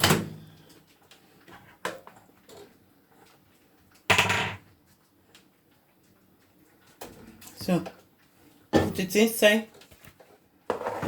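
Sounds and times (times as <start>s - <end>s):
dishes clattering: 4.1s - 4.7s.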